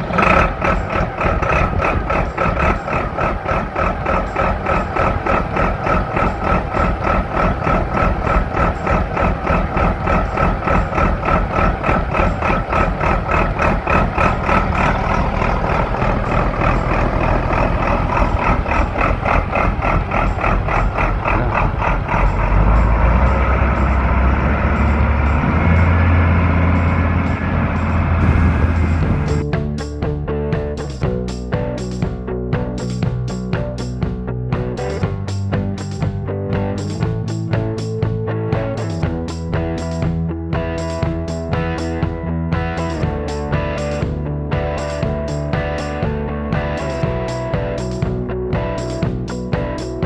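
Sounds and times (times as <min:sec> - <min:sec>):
high engine whine: 0:00.0 - 0:29.5
tractor diesel engine running: 0:00.0 - 0:29.5.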